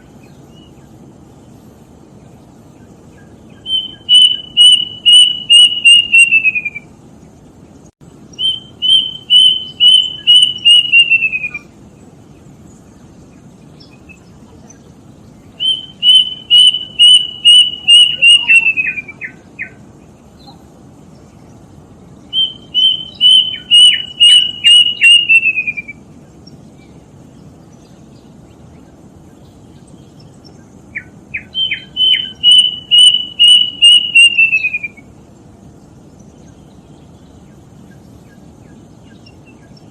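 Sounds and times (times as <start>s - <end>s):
low steady hiss: 0.0s - 39.9s
cuckoo whistled notes: 3.7s - 6.9s, 8.4s - 11.7s, 15.6s - 19.4s, 22.4s - 26.0s, 31.5s - 35.0s.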